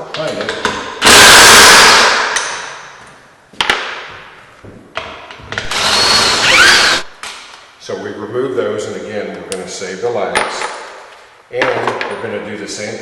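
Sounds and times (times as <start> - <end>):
impact wrench driving out bolts: 5.6 - 7.1.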